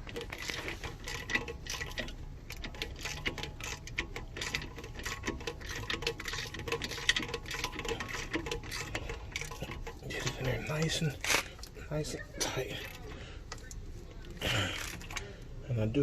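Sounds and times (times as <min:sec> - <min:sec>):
ratchet wrench clicking: 0:00.0 - 0:09.9.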